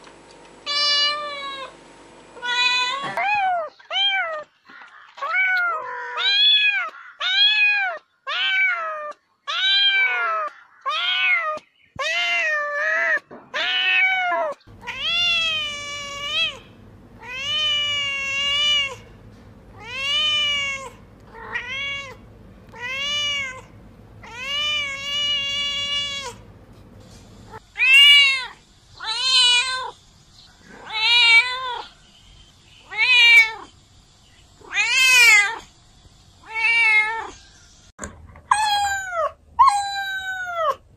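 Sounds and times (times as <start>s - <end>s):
cats meowing: 2.4s - 19.1s, 19.7s - 26.5s, 30.7s - 31.8s, 38.5s - 40.8s
low hum: 14.7s - 27.6s.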